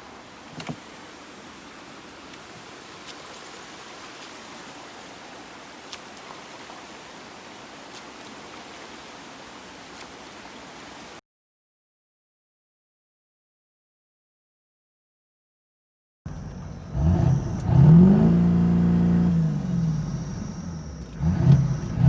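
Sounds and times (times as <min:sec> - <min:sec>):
rushing floodwater: 0:00.0 - 0:11.2.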